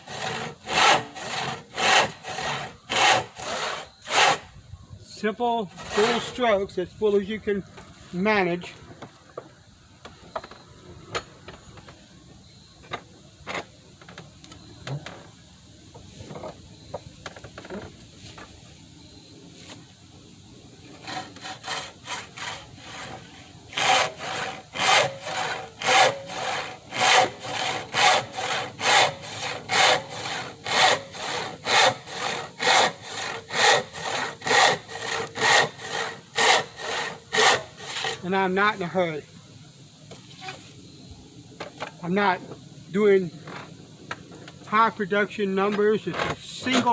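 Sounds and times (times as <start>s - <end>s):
handsaw cutting wood: 0.0s - 4.4s, 5.7s - 6.4s, 20.9s - 38.3s.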